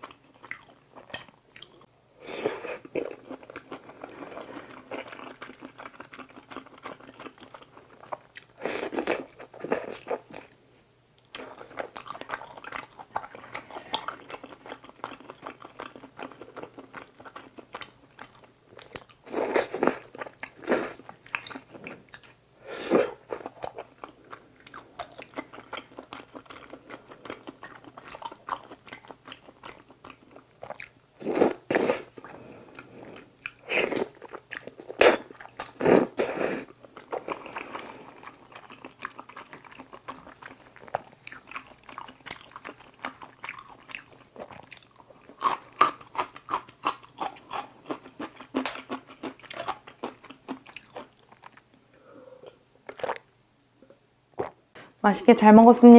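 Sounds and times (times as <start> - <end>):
wet chewing and biting: 36.9 - 51.6.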